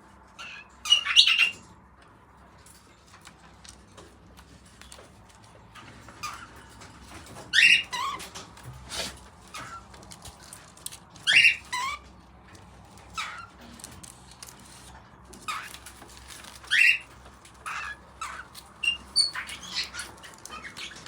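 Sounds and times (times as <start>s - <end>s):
cockatiel raspy calls: 0.4s - 1.5s, 11.2s - 12.0s, 16.7s - 21.0s.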